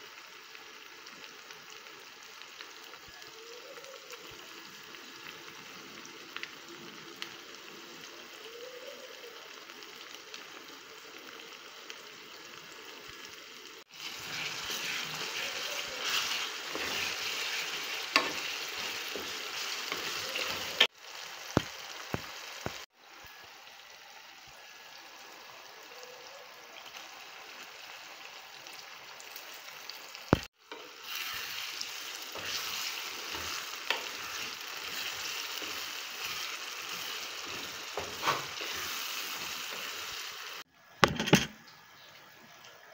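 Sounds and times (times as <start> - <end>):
sauce sizzling in a pot: 0.0 - 40.9
wooden spoon stirring: 14.0 - 20.9, 30.7 - 40.0.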